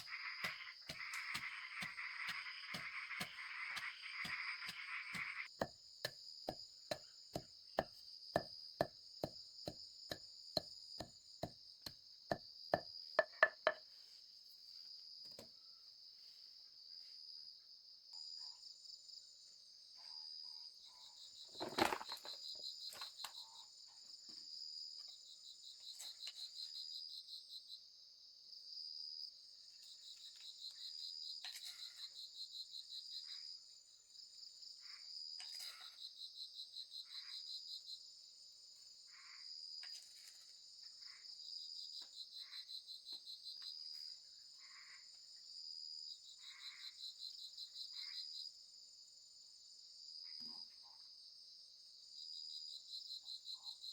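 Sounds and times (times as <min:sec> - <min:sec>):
sharp chopping strokes: 0:00.0 - 0:11.6
insects chirring: 0:00.0 - 0:13.8.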